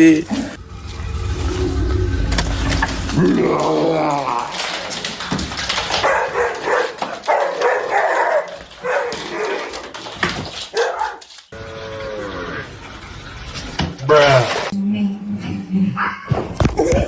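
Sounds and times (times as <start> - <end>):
drawn-out falling pitched sound: 0.6 - 4.9.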